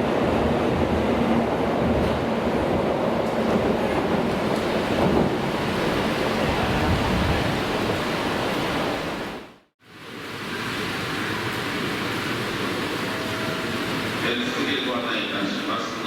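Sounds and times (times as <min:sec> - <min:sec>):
train rushing past platform: 0:00.0 - 0:09.4.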